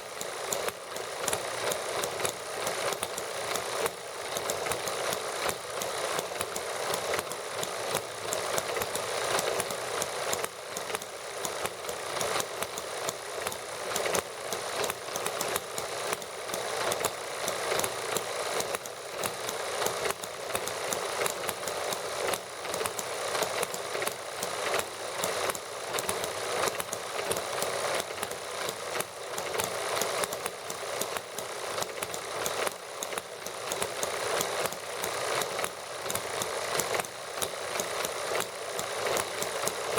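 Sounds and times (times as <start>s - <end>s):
small model gasoline engines running: 0.0s - 39.9s.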